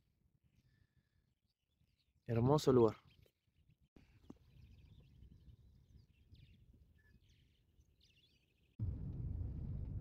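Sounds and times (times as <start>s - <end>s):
small birds chirping: 0.4s - 8.8s
low rumble: 8.8s - 10.0s.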